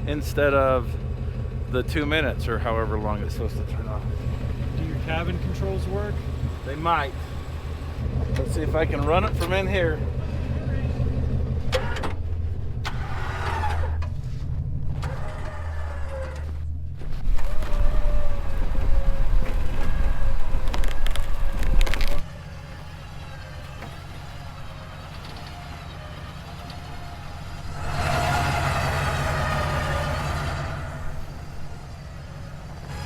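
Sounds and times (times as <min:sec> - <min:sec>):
truck engine running: 0:00.0 - 0:33.0
electric winch running: 0:17.3 - 0:33.0.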